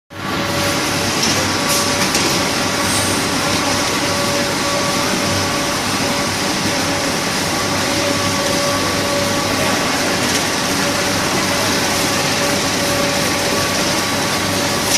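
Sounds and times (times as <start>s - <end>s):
machinery running: 0.1s - 14.9s.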